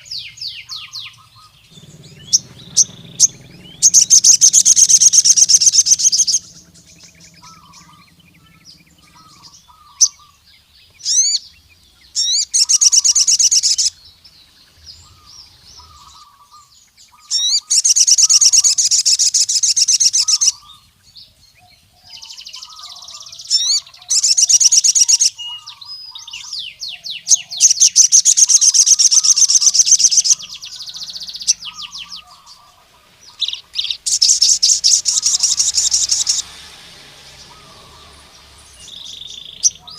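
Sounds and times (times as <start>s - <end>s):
bird singing rapid trills: 0.0s - 39.9s
soft bird chirps: 0.0s - 39.9s.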